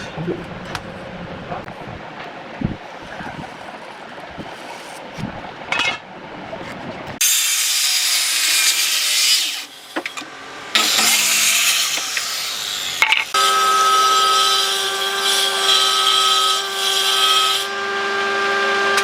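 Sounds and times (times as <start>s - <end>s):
knocking and scraping: 1.6s - 6.0s
power tool cutting wood: 7.2s - 19.0s.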